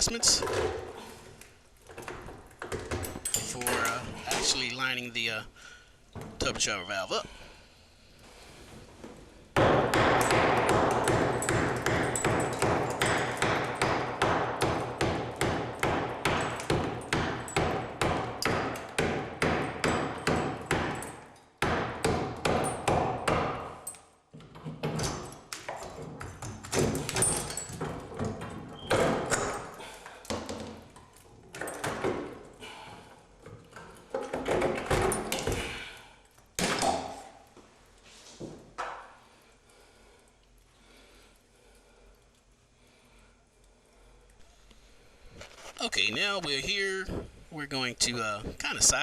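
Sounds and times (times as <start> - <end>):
hammer chipping cement: 9.6 - 23.7.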